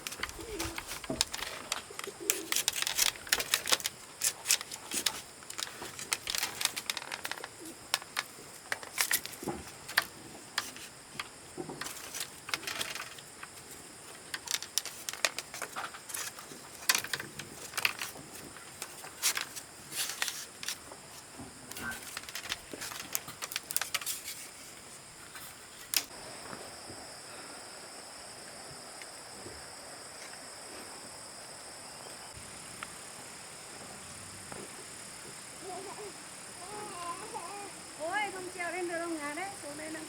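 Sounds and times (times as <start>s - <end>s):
bird cooing: 0.1s - 2.8s.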